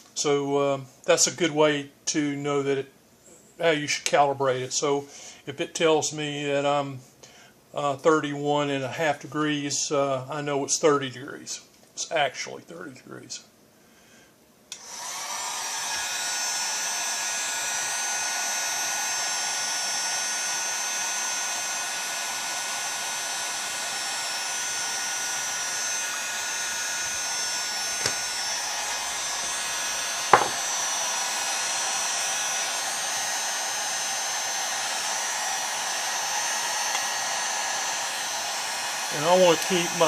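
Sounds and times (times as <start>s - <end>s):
heat gun blowing: 14.7s - 40.0s.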